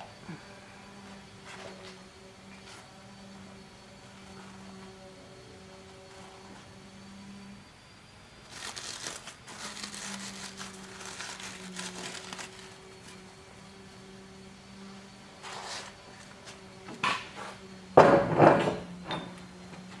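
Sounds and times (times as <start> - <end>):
grinding scrape: 15.4 - 17.6.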